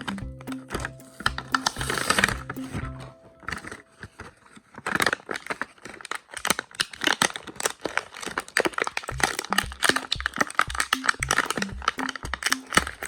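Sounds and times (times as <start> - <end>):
background music: 0.0 - 4.3, 9.1 - 13.0
packaging crinkling and tearing: 1.1 - 13.0.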